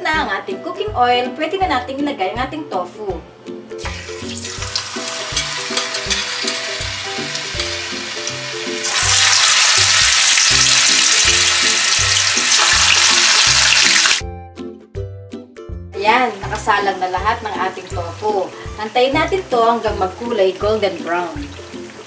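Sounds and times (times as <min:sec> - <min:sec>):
tofu sizzling in hot oil: 0:03.8 - 0:14.2, 0:20.9 - 0:22.0.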